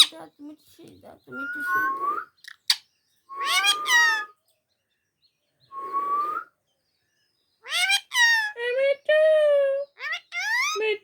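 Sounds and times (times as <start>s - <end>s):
parrot calling: 0.0s - 0.2s, 2.4s - 2.8s, 3.4s - 4.4s, 7.6s - 8.6s, 10.0s - 10.8s.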